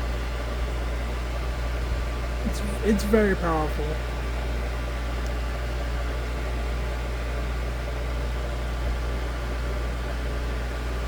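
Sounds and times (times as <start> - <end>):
table fan running: 0.0 - 11.0.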